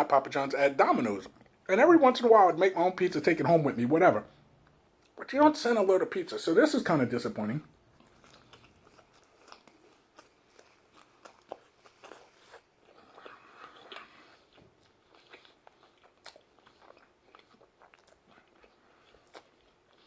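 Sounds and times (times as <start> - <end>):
chewing and biting pizza: 7.9 - 20.0.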